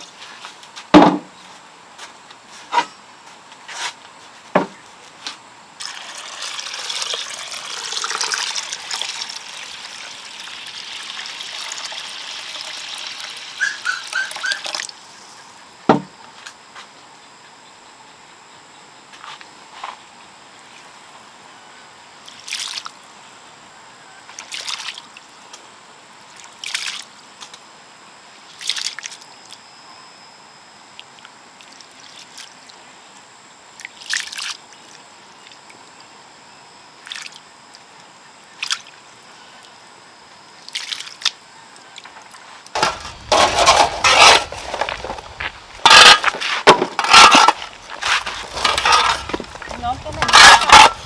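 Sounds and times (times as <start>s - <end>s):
water sloshing in a container: 5.8s - 13.9s, 42.8s - 51.0s
loud splashing and clattering: 42.8s - 51.0s.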